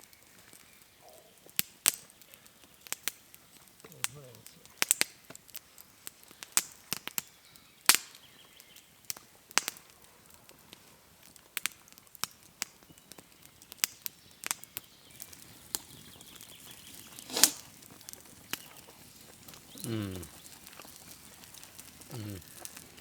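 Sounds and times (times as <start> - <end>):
campfire crackling: 0.0 - 23.0
sharp fire pops: 1.5 - 10.0, 10.6 - 18.7.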